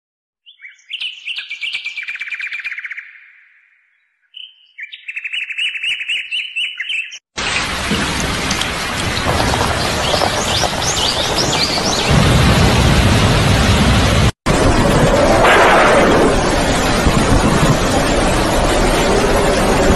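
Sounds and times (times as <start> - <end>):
birds chirping: 0.5 - 12.8
heavy rain: 7.4 - 19.9.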